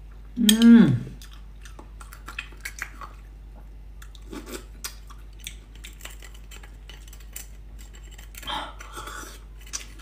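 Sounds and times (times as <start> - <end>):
wet chewing with sharp clicks: 1.2 - 7.5.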